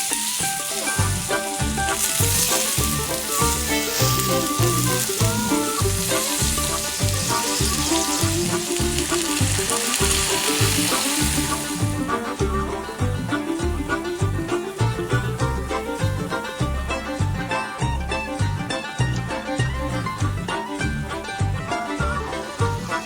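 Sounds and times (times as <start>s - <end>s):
beef sizzling in a pan: 0.0s - 12.4s, 21.8s - 23.0s
background music with beat: 0.0s - 23.0s.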